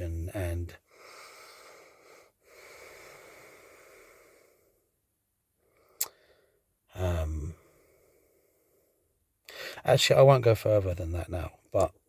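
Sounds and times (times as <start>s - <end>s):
person breathing: 0.8s - 4.9s, 5.6s - 6.6s, 7.5s - 9.8s
mouth click: 6.0s - 6.2s.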